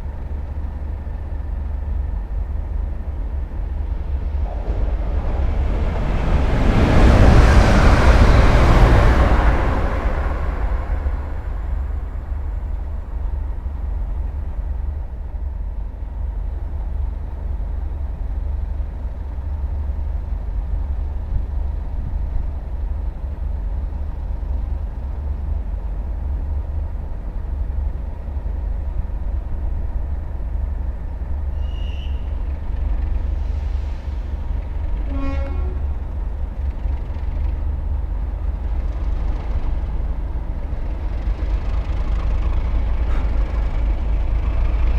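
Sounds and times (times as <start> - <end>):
train rumble: 0.0 - 44.9
train horn toot: 4.2 - 12.0, 31.6 - 32.4, 34.9 - 36.1.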